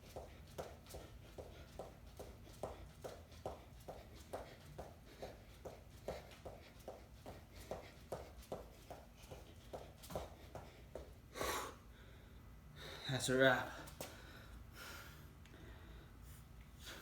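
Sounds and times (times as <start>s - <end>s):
footsteps of person running: 0.0s - 11.1s.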